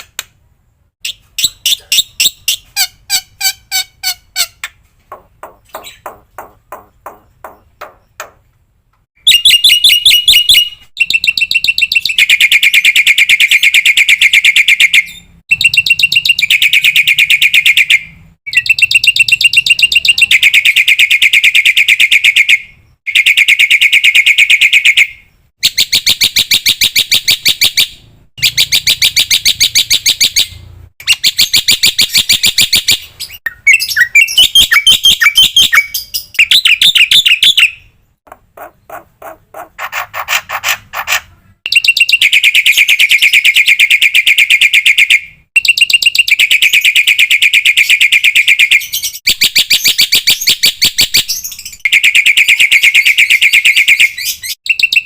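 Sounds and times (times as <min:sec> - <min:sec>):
bird fast chattering song: 0:01.0 - 0:04.7, 0:05.4 - 0:08.4, 0:09.3 - 0:37.9, 0:38.5 - 0:55.0
bird warbling trill: 0:09.3 - 0:25.0.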